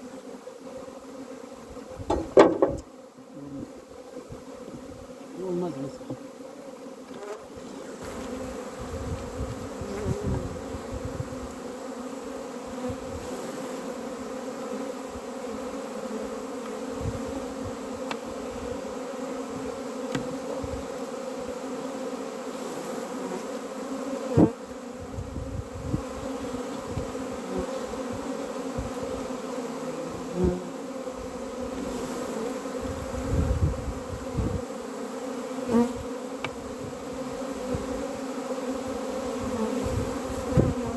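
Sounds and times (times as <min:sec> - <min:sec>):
bees buzzing: 0:00.0 - 0:40.9
sharp knock: 0:02.1 - 0:02.8.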